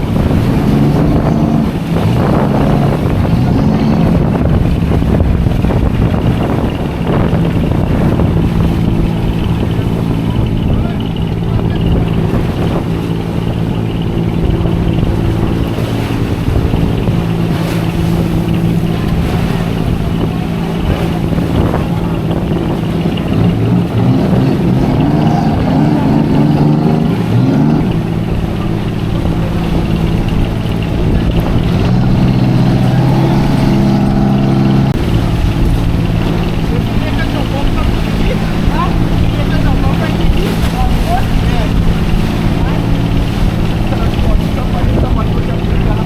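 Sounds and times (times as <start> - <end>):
boat engine revving: 0.0 - 46.0
low rumble: 0.0 - 46.0.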